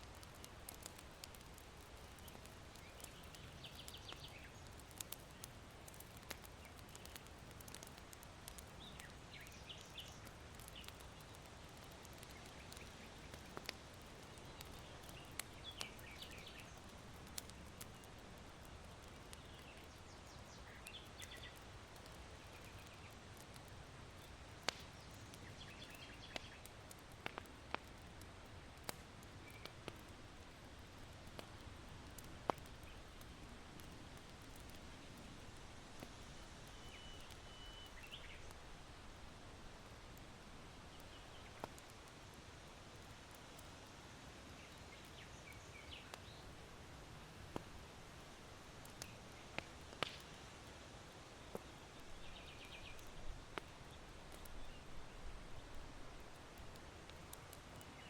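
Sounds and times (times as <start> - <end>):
charcoal fire crackling: 0.0 - 58.0
small birds chirping: 0.1 - 18.2, 18.8 - 27.9, 36.0 - 38.6, 44.6 - 46.6, 51.3 - 56.4, 57.3 - 58.0.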